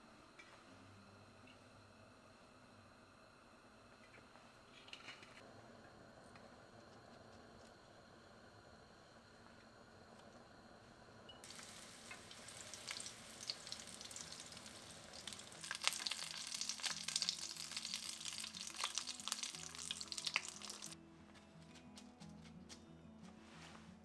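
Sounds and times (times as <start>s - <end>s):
shrimp frying in oil: 11.4s - 21.0s.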